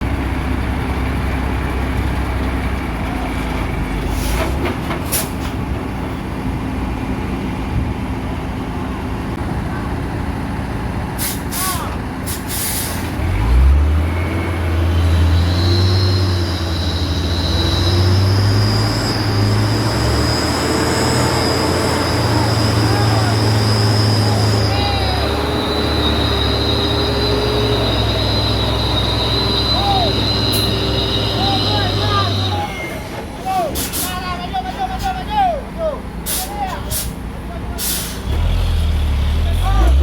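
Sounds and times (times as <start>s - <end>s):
truck engine running: 0.0s - 40.0s
air hiss bursts: 11.2s - 13.2s.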